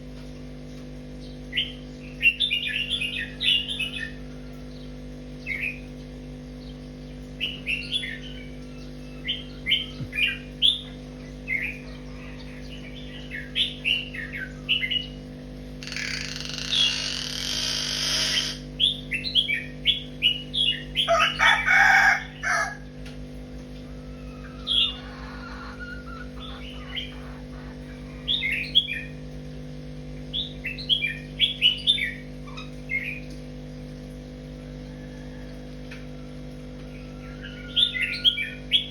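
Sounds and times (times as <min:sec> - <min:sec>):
steady low hum: 0:00.0 - 0:38.9
small birds chirping: 0:01.2 - 0:15.2, 0:15.8 - 0:22.6, 0:23.8 - 0:29.2
rooster crow: 0:21.0 - 0:23.0, 0:23.8 - 0:28.5, 0:34.7 - 0:38.7.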